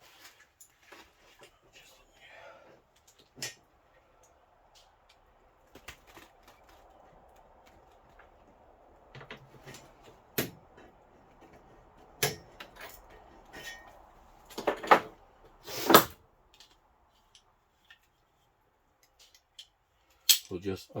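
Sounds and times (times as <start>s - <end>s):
sharp knocks and clatters: 7.8s - 16.2s.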